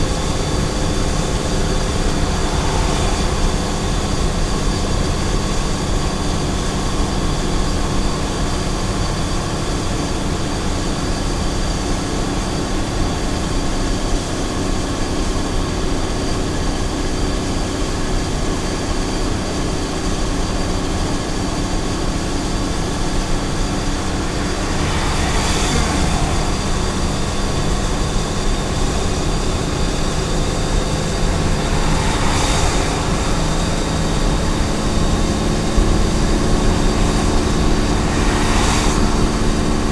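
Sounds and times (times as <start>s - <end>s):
passing whooshes: 0.0s - 7.1s, 22.8s - 39.9s
tyre and road noise: 0.0s - 10.6s, 21.6s - 39.9s
truck engine running: 0.0s - 11.2s, 20.7s - 39.9s.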